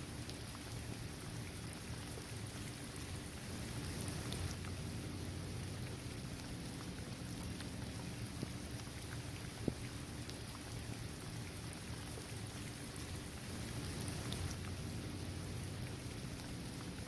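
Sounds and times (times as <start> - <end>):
rain falling on hard surface: 0.0 - 17.0
raindrops ticking: 3.4 - 17.0.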